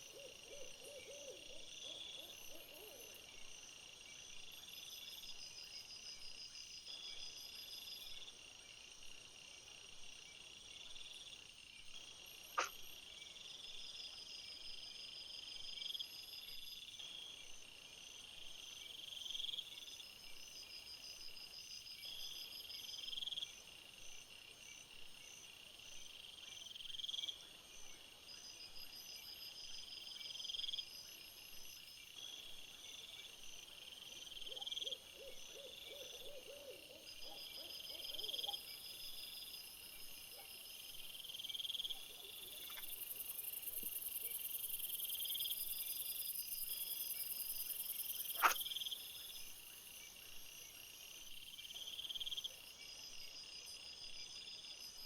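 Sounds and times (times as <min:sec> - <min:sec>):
crickets chirping in pulsed trills: 0:00.0 - 0:55.0
sharp click: 0:12.6 - 0:12.8.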